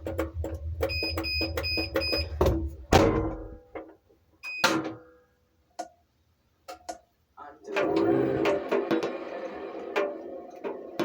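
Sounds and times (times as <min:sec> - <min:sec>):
washing machine hum: 0:00.0 - 0:03.6, 0:07.7 - 0:11.0.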